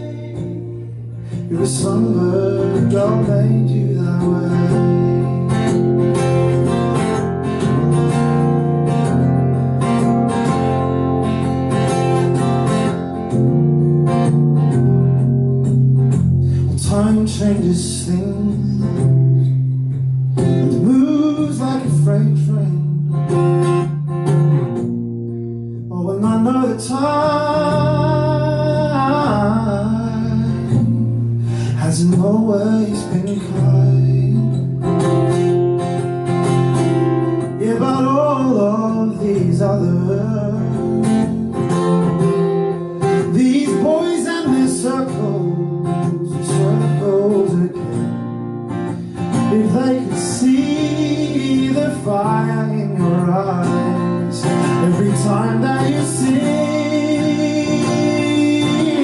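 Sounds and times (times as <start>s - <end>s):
man singing: 0.0s - 5.7s, 16.5s - 19.6s, 20.6s - 23.1s, 25.9s - 34.9s, 37.4s - 41.2s, 43.0s - 48.0s, 49.3s - 59.0s
acoustic guitar strumming: 0.0s - 59.0s.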